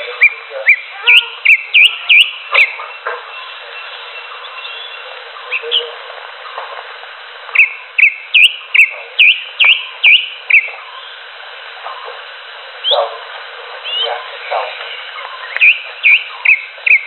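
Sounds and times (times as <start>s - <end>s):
bird calling: 0.0s - 6.6s, 7.5s - 11.3s, 13.8s - 17.0s.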